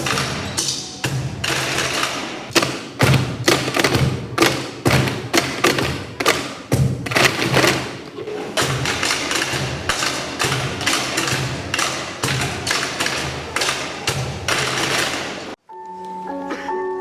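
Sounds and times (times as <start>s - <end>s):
percussion knocks and low thuds: 1.1s - 8.0s.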